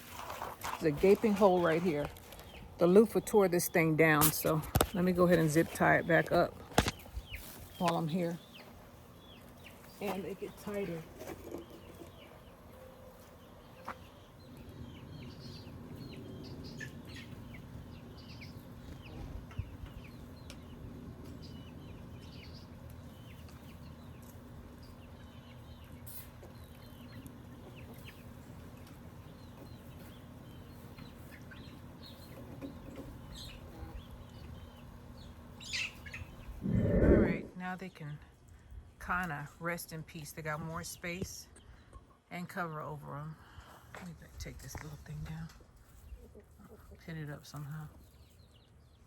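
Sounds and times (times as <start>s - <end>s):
chickens clucking and peeping: 0.0s - 42.6s, 43.6s - 49.0s
low steady rumble: 36.4s - 37.7s.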